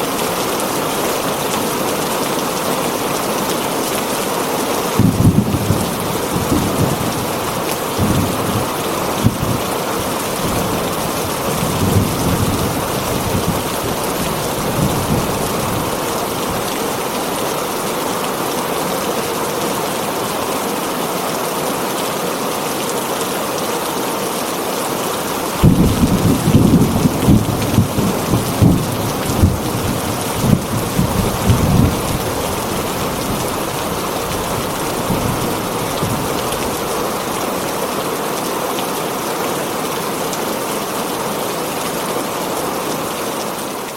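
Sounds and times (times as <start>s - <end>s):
heavy rain on a tin roof: 0.0s - 43.9s
thunder rumbling: 5.0s - 16.7s, 25.6s - 36.8s.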